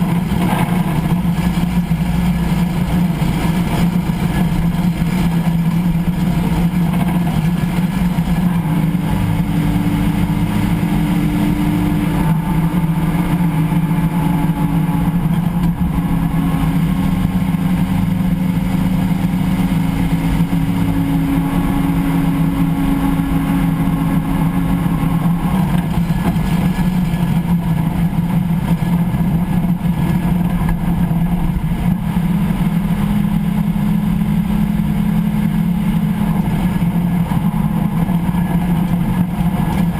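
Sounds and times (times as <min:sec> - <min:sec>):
high drivetrain whine: 0:00.0 - 0:39.9
low driveline drone: 0:00.0 - 0:39.9.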